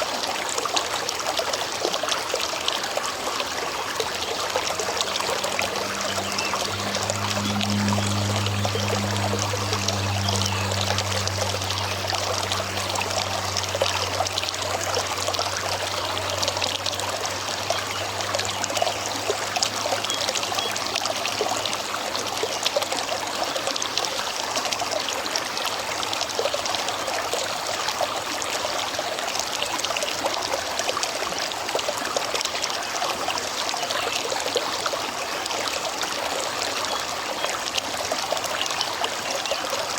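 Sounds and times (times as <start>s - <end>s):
river water flowing: 0.0s - 39.9s
low droning hum: 4.1s - 21.9s.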